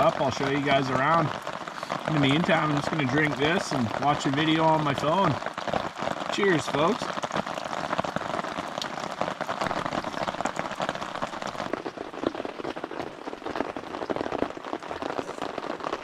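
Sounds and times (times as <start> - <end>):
rain tapping on tent fabric: 0.0 - 16.0.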